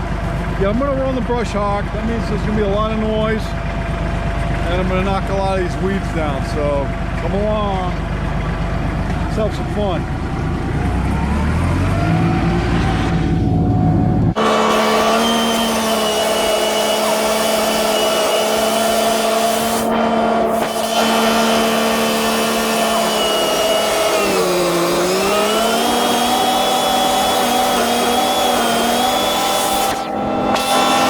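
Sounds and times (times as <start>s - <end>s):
tractor engine whining: 0.0s - 31.0s.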